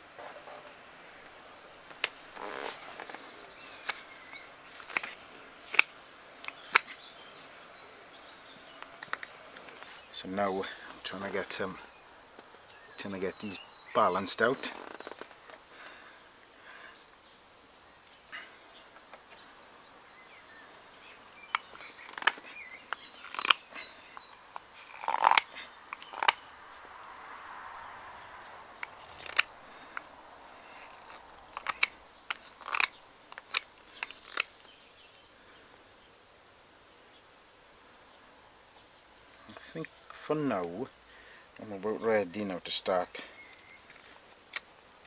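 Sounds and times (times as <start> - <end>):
knife slicing wood: 24.8 - 26.4.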